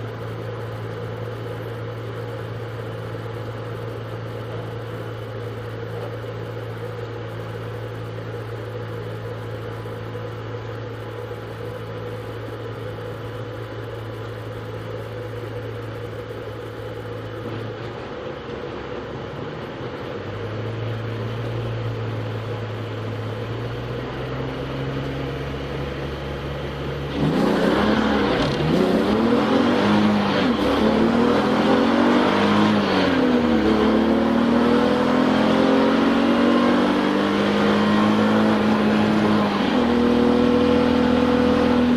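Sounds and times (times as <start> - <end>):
race car engine accelerating: 20.2 - 41.9.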